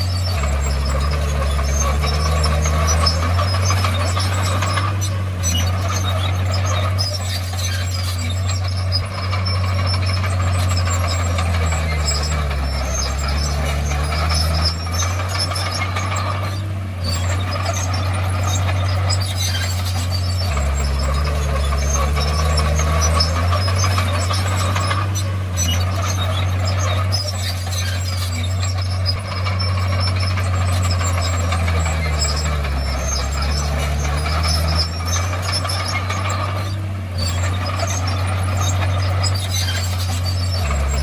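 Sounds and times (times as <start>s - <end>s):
bulldozer diesel engine running: 0.0s - 41.0s
tracks squeaking and clanking: 0.0s - 41.0s.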